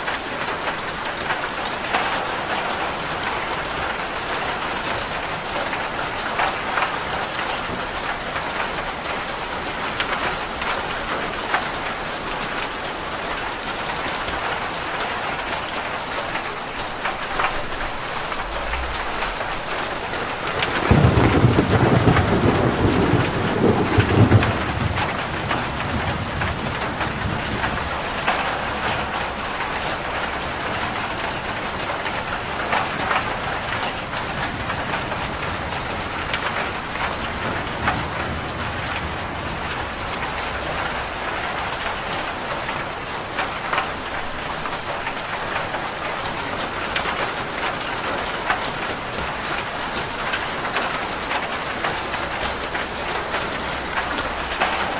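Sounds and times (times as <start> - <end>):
rain on a roof: 0.0 - 54.9
thunder rumble: 17.6 - 29.4.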